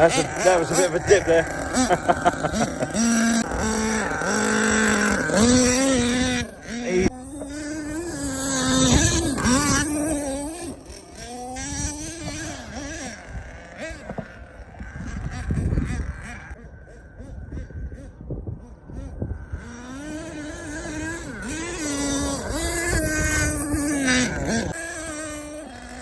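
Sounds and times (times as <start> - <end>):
small glow engine revving: 0.0 - 26.0.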